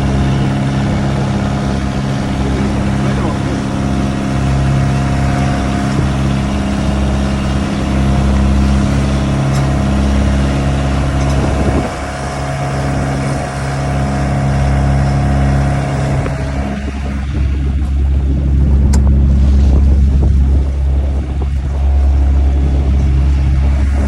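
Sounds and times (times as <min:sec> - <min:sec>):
boat engine droning: 0:00.0 - 0:24.0
high steady whine: 0:00.0 - 0:24.0.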